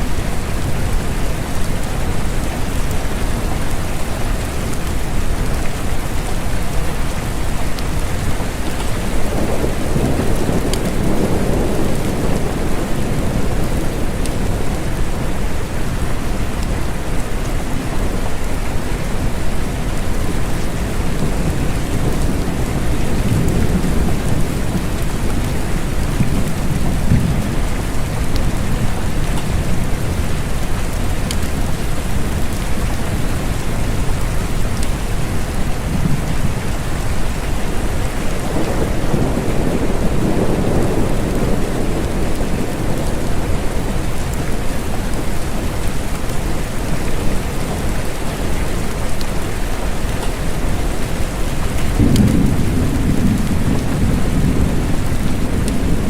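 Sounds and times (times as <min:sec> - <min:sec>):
steady rain falling: 0:00.0 - 0:56.0
rolling thunder rumbles: 0:08.3 - 0:17.2, 0:19.2 - 0:30.9, 0:33.8 - 0:46.5, 0:51.1 - 0:56.0.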